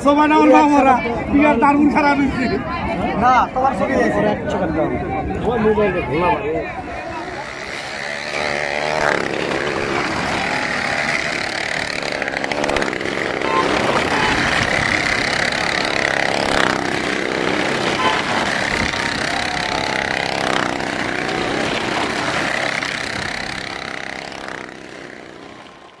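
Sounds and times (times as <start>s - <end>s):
car engine at high revs: 7.5s - 26.0s.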